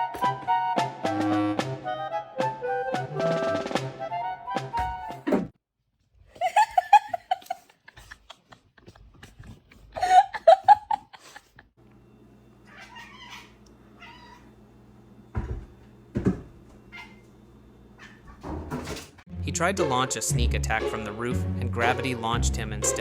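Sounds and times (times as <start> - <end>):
cat yowling: 12.7 - 14.6, 16.9 - 17.2.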